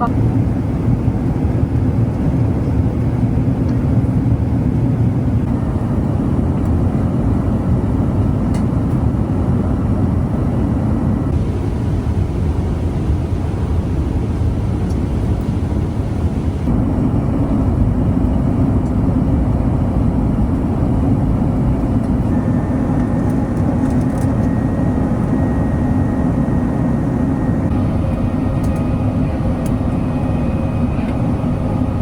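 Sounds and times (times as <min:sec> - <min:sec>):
airplane cabin rumble: 0:00.0 - 0:32.0.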